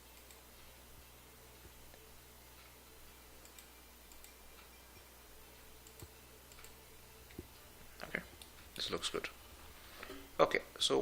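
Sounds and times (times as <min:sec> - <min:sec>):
steady low hum: 0:00.0 - 0:11.0
computer mouse clicks: 0:03.4 - 0:04.7, 0:05.8 - 0:08.6.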